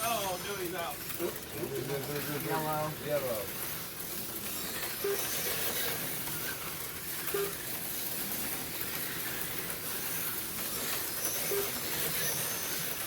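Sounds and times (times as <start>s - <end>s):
slot cars whirring on track: 0.0s - 13.0s
short beeps: 7.3s - 7.6s.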